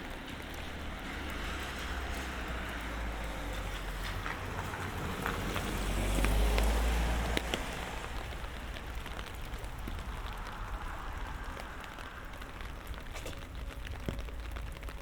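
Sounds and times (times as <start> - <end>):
car passing on wet street: 0.0 - 15.0
light rain falling: 0.0 - 15.0.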